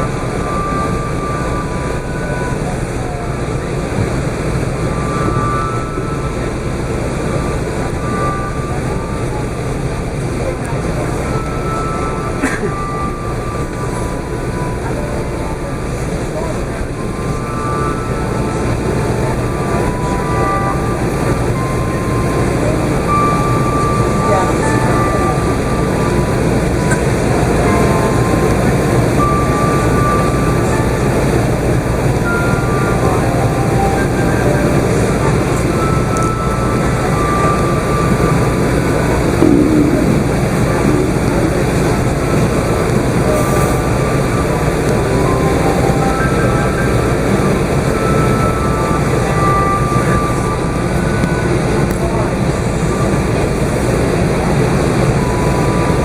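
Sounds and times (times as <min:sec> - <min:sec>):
faint high whine: 0:00.0 - 0:31.1, 0:32.2 - 0:52.3
engine and airflow rumble in cabin: 0:00.0 - 0:56.0
airplane cabin rumble: 0:38.0 - 0:44.9.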